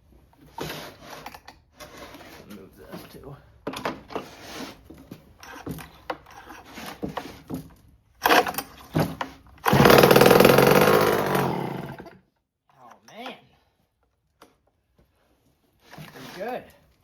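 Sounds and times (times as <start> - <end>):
chainsaw pull cord pulls: 8.2 - 8.7, 9.6 - 12.2
chainsaw engine running loudly: 9.7 - 12.1.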